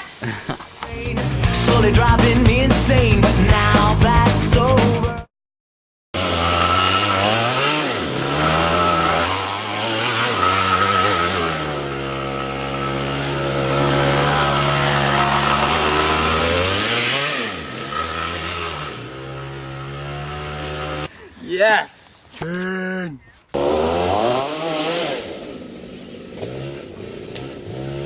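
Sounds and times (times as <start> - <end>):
kart engine running hard: 6.2 - 21.1, 23.7 - 28.0.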